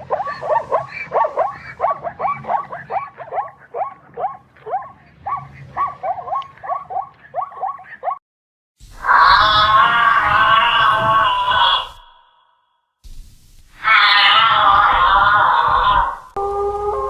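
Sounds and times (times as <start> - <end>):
dog yelping: 0.0 - 8.2.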